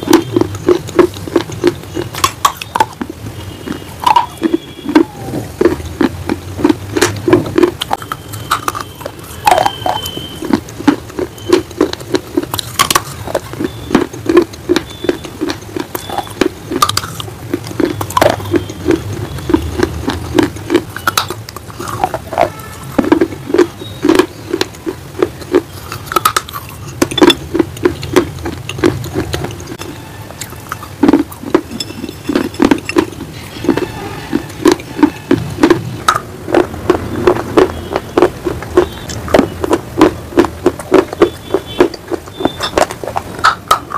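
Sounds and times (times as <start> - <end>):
crunching and chewing clay: 0.0 - 43.9.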